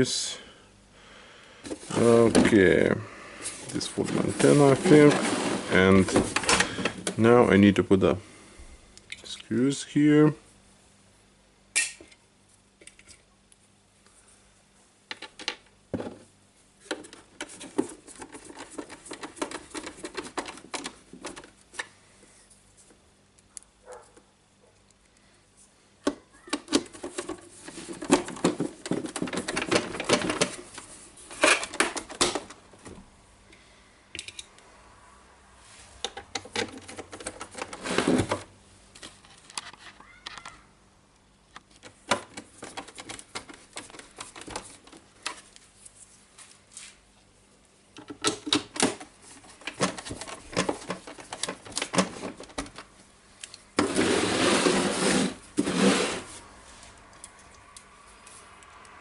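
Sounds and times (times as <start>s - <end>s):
plastic housing rattling: 16.9s - 21.6s, 26.5s - 32.6s, 36.1s - 38.4s, 48.0s - 52.8s.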